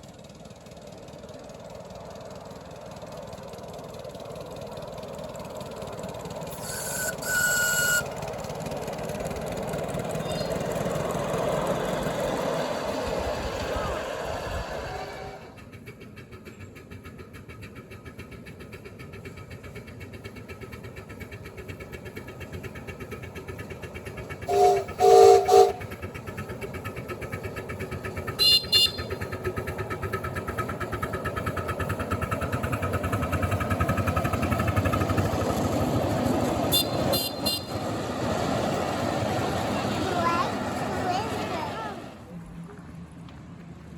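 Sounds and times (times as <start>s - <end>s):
miniature train running: 0.0s - 43.9s
train whistle blasts: 6.5s - 8.2s, 24.5s - 25.9s, 28.4s - 29.2s, 36.7s - 37.8s
short high-pitched toots: 6.6s - 8.1s.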